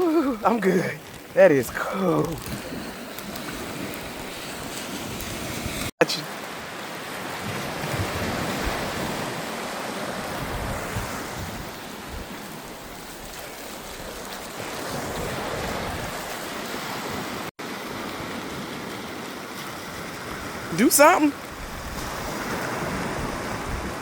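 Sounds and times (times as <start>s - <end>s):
ocean surf washing ashore: 0.0s - 24.0s
wind buffeting microphone: 10.2s - 13.0s, 21.5s - 24.0s.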